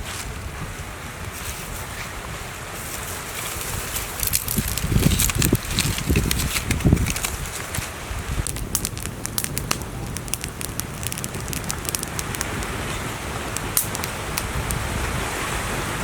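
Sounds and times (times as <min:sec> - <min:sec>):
steady fire hiss: 0:02.7 - 0:15.2
fire crackling and popping: 0:02.8 - 0:15.1.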